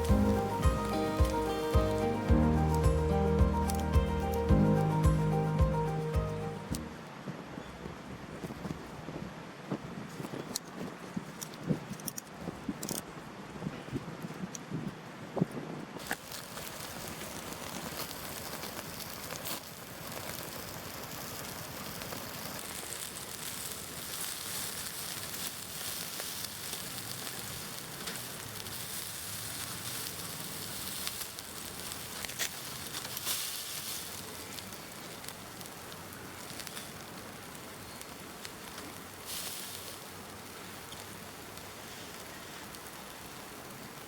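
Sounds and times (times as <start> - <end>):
campfire crackling and sizzling: 0.0 - 7.2, 16.0 - 44.0.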